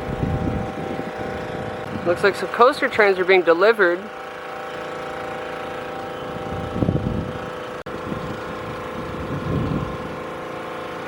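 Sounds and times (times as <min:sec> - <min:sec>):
wind buffeting microphone: 0:00.0 - 0:02.6, 0:06.3 - 0:10.4
engine hum: 0:00.0 - 0:11.0.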